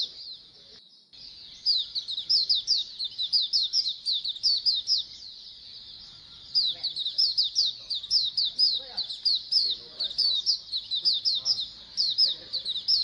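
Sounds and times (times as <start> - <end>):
flock of birds chirping: 0.0 - 13.0.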